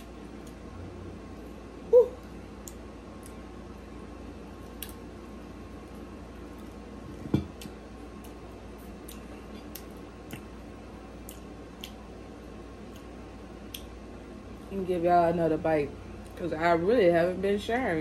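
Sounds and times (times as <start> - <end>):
steady low hum: 0.0 - 18.0
wet chewing and mouth smacks: 7.6 - 10.6, 11.2 - 12.1, 12.8 - 14.0.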